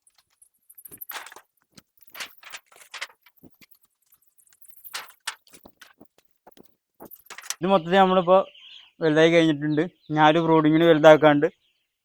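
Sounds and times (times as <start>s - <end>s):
hard objects knocking and scuffing: 0.8s - 3.8s, 4.4s - 7.6s.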